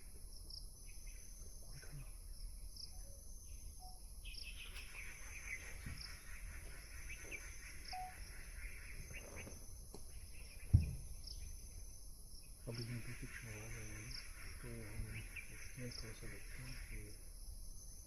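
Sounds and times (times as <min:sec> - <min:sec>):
birds calling and chattering: 0:00.0 - 0:18.0
insects buzzing: 0:00.0 - 0:18.0
sharp thump: 0:10.7 - 0:11.1.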